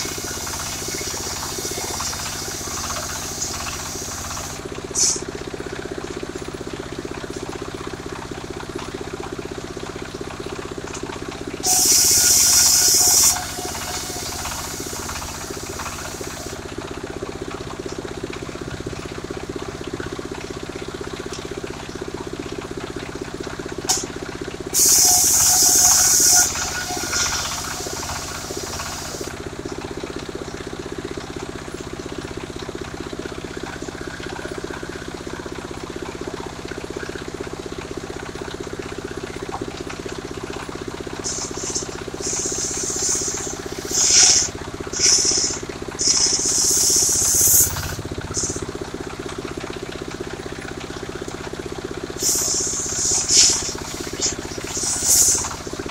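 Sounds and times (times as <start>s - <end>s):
sawmill engine humming: 0.0s - 19.8s, 23.3s - 30.2s, 37.6s - 55.9s
circular saw cutting wood: 11.6s - 16.6s, 24.8s - 29.3s, 41.2s - 48.7s, 52.2s - 55.9s.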